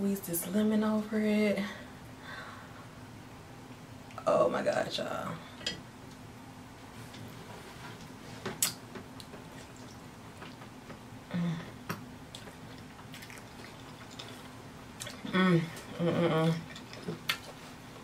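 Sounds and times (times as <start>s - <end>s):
person humming: 11.3s - 11.8s, 15.3s - 16.6s
person chewing: 12.3s - 15.9s.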